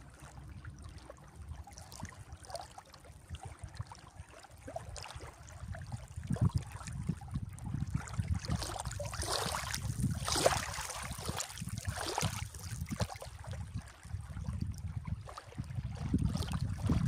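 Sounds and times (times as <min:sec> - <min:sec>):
wind rumble on microphone: 0:00.0 - 0:17.0
sea waves washing in: 0:08.8 - 0:12.9.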